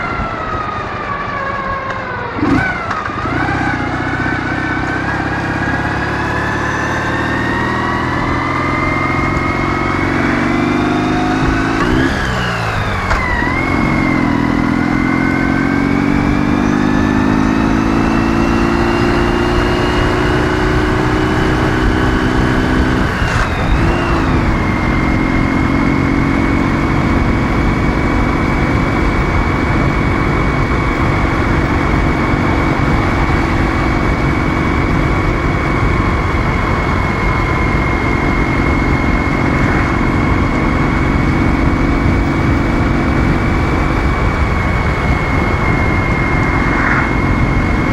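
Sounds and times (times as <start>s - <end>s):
motorcycle engine revving: 0.0s - 47.9s
rush of noise: 0.0s - 47.9s.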